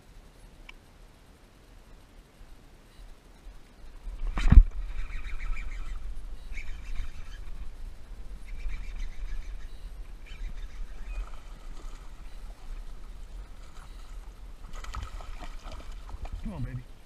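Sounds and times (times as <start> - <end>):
birds chirping: 2.9 - 17.0
wind on microphone: 4.0 - 16.8.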